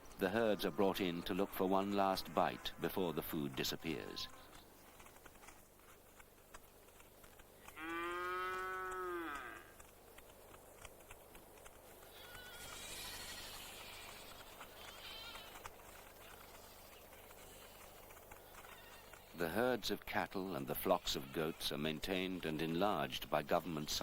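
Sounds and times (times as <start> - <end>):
livestock calling: 12.0 - 19.7.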